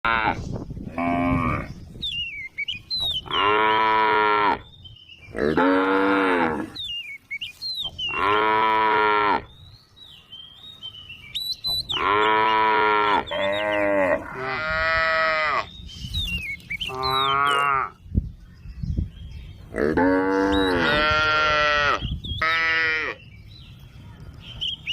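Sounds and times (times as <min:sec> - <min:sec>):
cows mooing: 0:03.2 - 0:04.6, 0:05.4 - 0:06.8, 0:08.1 - 0:09.5, 0:11.9 - 0:15.7, 0:16.9 - 0:18.0, 0:19.7 - 0:23.2.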